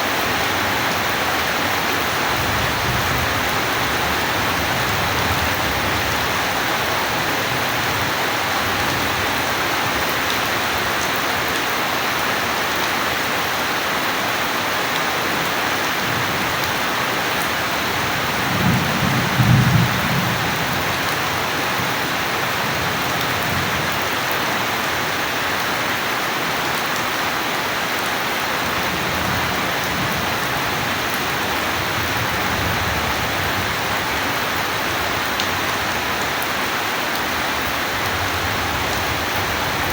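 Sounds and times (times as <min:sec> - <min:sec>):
steady rain: 0:00.0 - 0:39.9
thunder rumble: 0:18.4 - 0:21.1.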